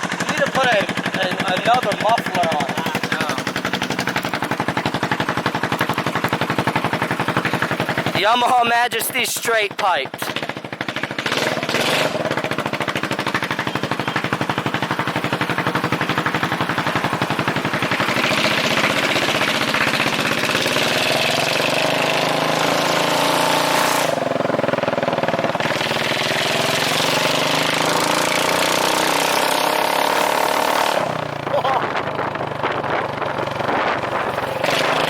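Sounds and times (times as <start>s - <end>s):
scooter engine running loud: 0.0s - 35.0s.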